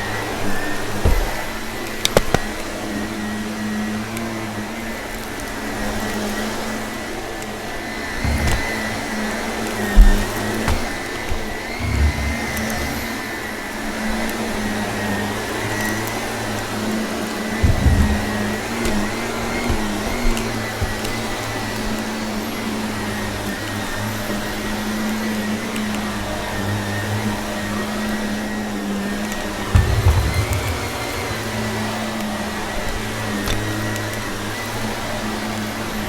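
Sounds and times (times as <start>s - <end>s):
vacuum cleaner motor whine: 0.0s - 36.0s
low bumps: 11.8s - 13.0s, 17.6s - 21.1s, 29.7s - 32.2s
crunchy debris sucked up: 29.8s - 32.1s.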